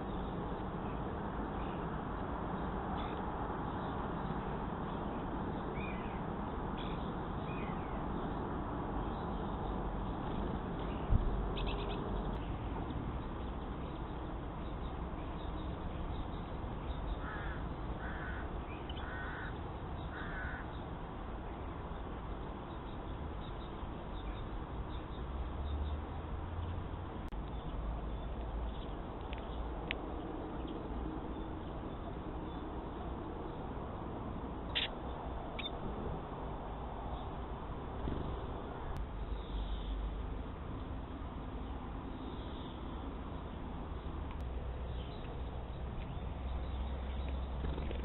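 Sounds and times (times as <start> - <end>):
crow cawing: 17.2 - 20.7.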